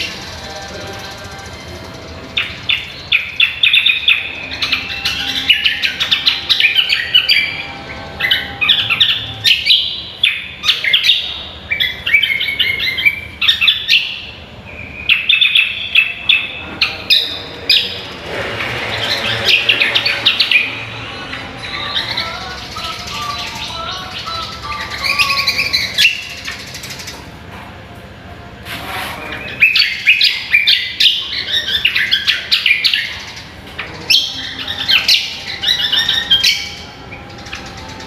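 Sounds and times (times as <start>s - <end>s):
bird singing chirps and trills: 0.0s - 27.4s, 29.2s - 38.0s.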